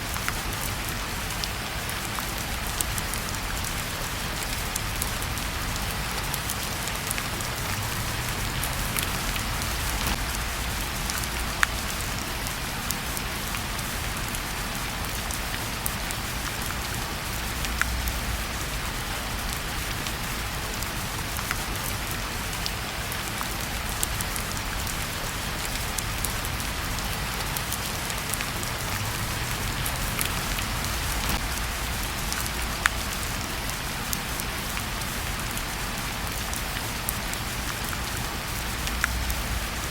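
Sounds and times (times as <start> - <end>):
rain hiss: 0.0 - 39.9
wood fire crackling and popping: 4.4 - 12.5, 25.7 - 33.5.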